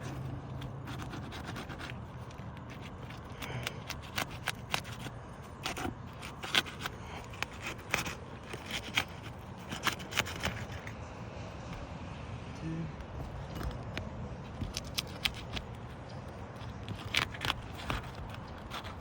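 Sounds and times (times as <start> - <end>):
roof shingles crackling and scraping: 0.0 - 11.9, 13.0 - 19.0.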